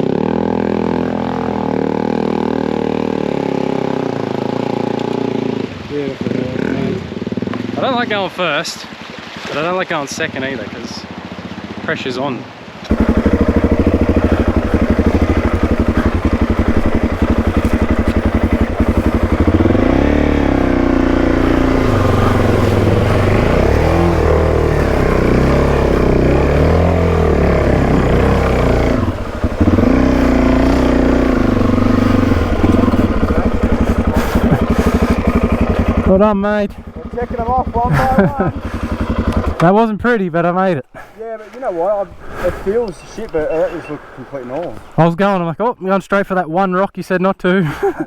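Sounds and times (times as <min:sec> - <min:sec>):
motorcycle engine revving: 0:00.0 - 0:08.2, 0:12.9 - 0:39.7.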